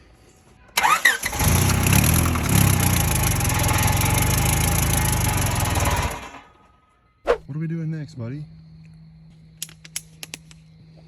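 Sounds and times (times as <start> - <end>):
car engine cranking and running: 0.8 - 6.8.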